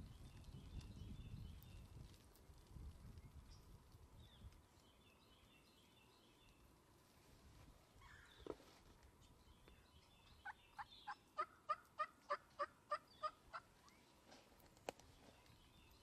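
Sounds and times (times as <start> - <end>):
wild turkey yelping: 10.4 - 13.7.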